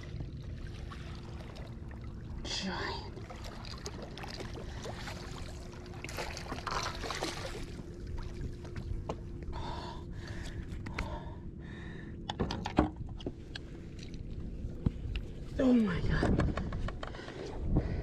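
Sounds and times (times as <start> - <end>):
water splashing: 0.0 - 8.9
faint steady hum: 0.0 - 18.0
heavy breathing: 9.5 - 12.2.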